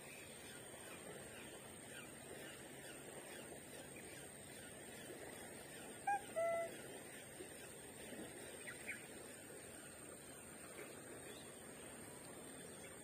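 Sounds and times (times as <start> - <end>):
bird calling: 5.9 - 6.9
thin high-pitched tone: 6.1 - 6.7.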